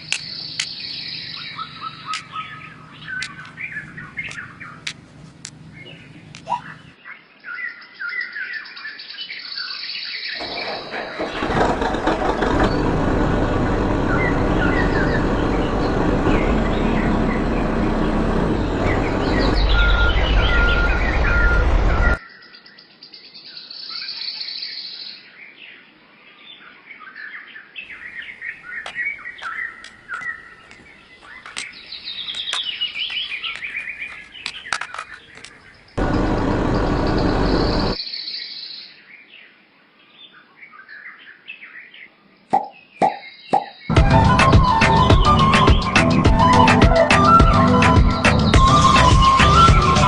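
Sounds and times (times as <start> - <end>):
small birds chirping: 0.0 - 11.6, 12.6 - 46.6
loud rushing noise: 11.7 - 22.2.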